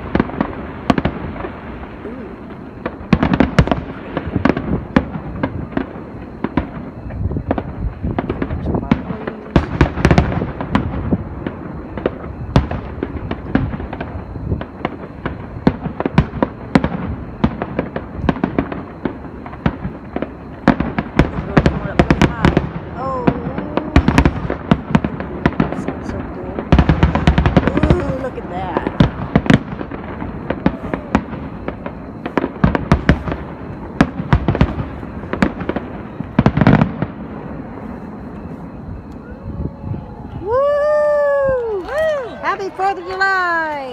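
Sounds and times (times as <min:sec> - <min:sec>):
fireworks bangs and crackles: 0:00.0 - 0:43.9
rumble of distant bursts: 0:00.0 - 0:43.9.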